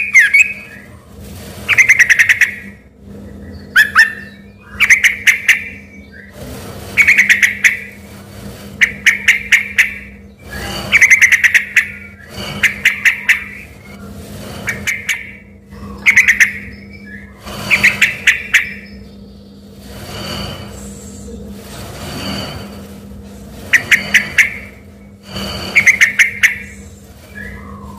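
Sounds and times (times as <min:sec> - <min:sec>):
bird singing sharp phrases: 0:00.0 - 0:00.9.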